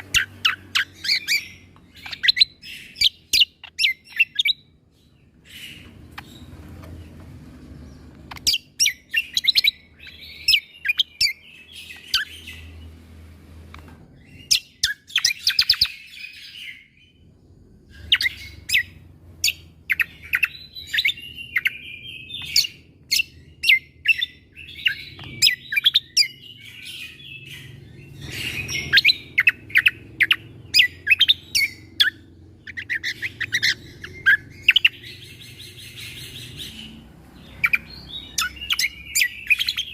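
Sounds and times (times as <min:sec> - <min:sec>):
bird twittering: 0:00.0 - 0:06.9, 0:07.7 - 0:13.0, 0:14.2 - 0:39.9
bird singing rapid staccato notes: 0:00.0 - 0:13.2, 0:14.0 - 0:39.9.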